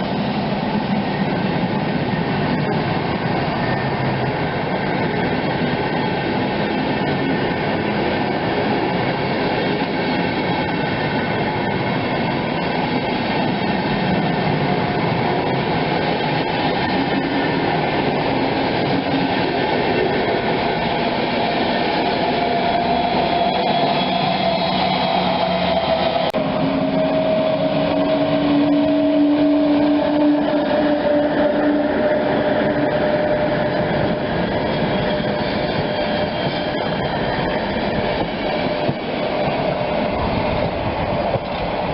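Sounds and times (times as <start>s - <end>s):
train wheels on rails: 0.0s - 41.9s.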